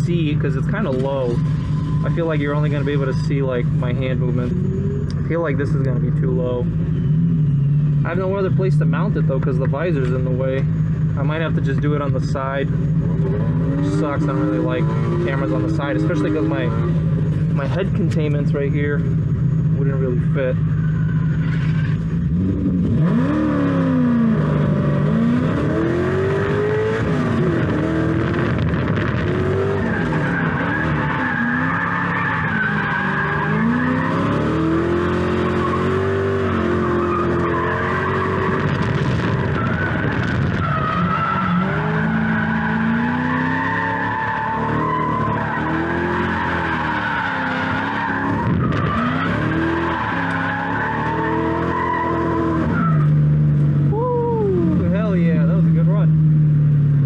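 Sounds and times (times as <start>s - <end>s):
car engine revving: 0.0s - 57.0s
tyres squealing: 29.5s - 38.8s, 39.4s - 53.1s.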